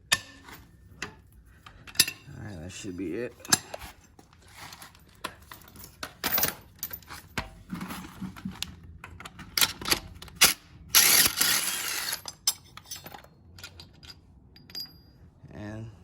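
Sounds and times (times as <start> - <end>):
metal tools clanking: 1.8 - 2.6, 11.0 - 15.2.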